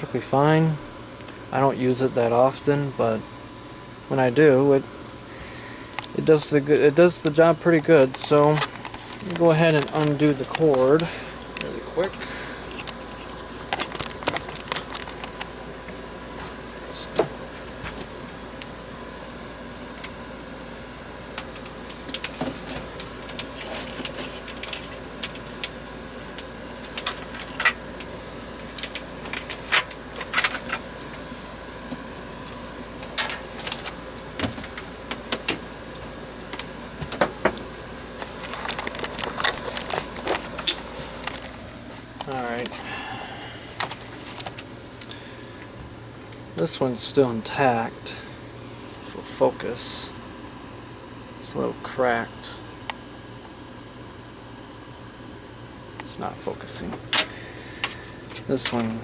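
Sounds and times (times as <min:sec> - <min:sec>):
faint steady hum: 0:00.0 - 0:59.0
power cord clicking and tapping: 0:05.9 - 0:18.7.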